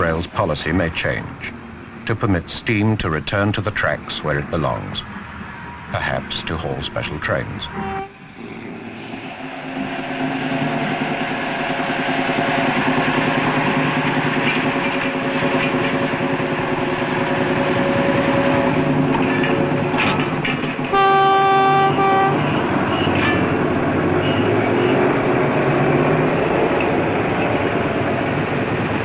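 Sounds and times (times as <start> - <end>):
train wheels rumbling and rattling: 0.0 - 29.0
steam locomotive whistle: 7.6 - 8.6, 20.9 - 23.2.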